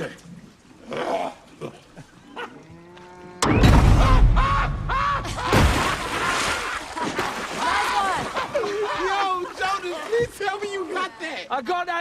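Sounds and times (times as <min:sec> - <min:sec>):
loud low thud: 0:03.4 - 0:06.0.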